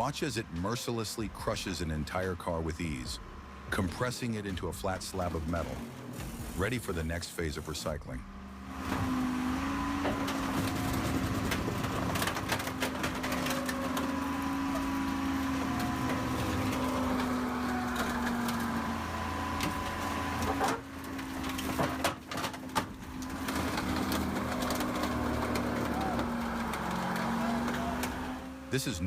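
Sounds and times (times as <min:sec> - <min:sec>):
heavy machinery humming: 0:00.0 - 0:29.0
metal cracking and clanking: 0:08.8 - 0:28.6.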